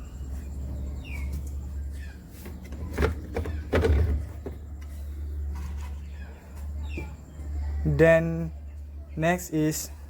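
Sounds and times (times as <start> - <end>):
washing machine knocks and clatter: 2.6 - 4.7.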